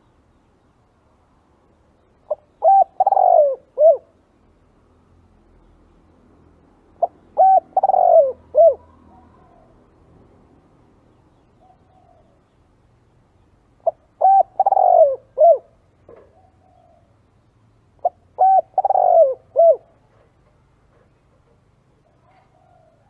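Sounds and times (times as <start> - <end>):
dove cooing: 2.3 - 4.2, 7.0 - 9.8, 13.8 - 17.2, 18.0 - 20.2, 22.0 - 23.0.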